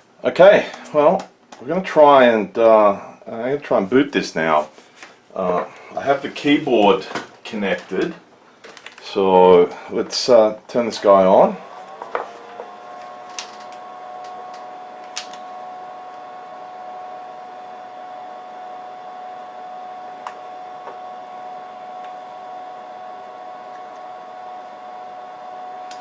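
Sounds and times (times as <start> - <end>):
cooling fans whining: 0.0 - 26.0.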